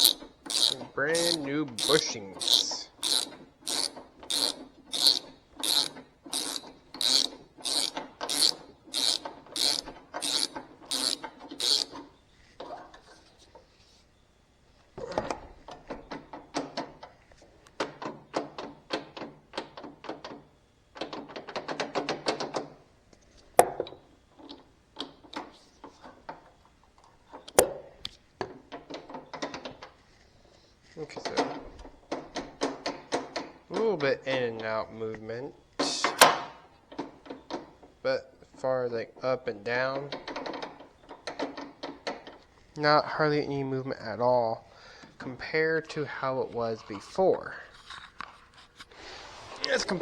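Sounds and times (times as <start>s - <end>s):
ratchet wrench clicking: 0.0s - 11.9s.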